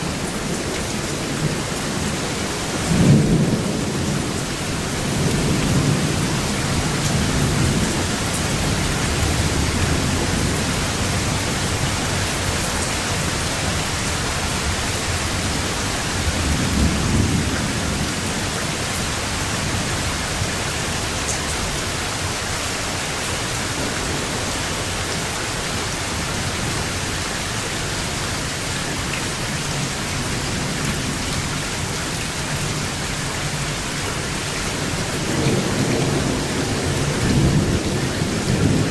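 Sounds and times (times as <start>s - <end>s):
heavy rain: 0.0s - 38.9s
thunder rumbling: 23.6s - 27.2s.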